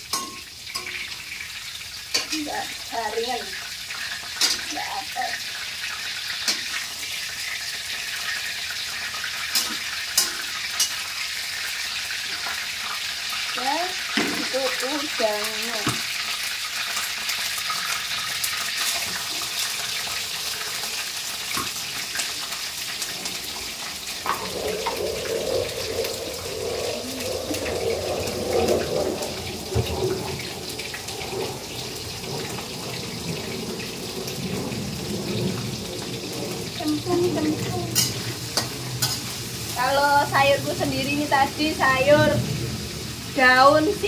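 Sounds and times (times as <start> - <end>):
food sizzling in hot oil: 0.0 - 44.0
metal ladle knocking on pan: 0.1 - 1.0.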